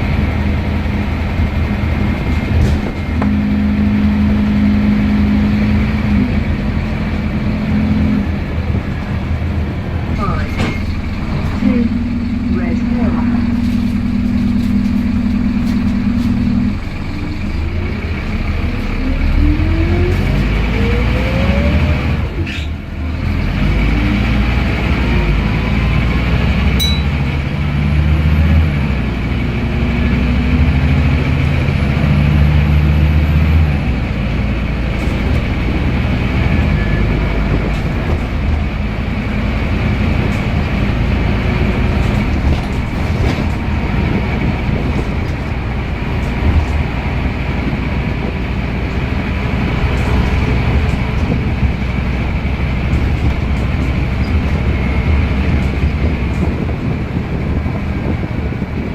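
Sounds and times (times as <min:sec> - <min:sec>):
bus gearbox whine: 0:00.0 - 0:23.2, 0:24.6 - 0:27.8, 0:28.4 - 0:58.9
bus engine drone: 0:00.0 - 0:58.9.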